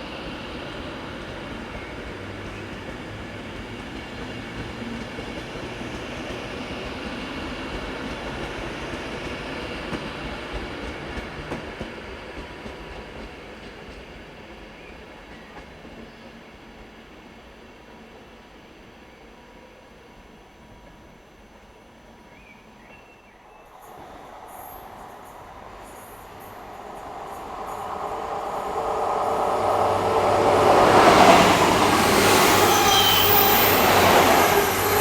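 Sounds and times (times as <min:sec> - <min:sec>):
train running on track: 0:00.0 - 0:35.0.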